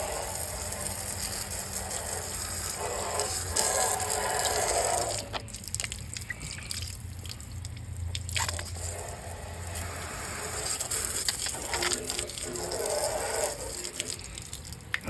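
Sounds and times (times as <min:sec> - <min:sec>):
water splashing and dripping: 0:00.0 - 0:15.0.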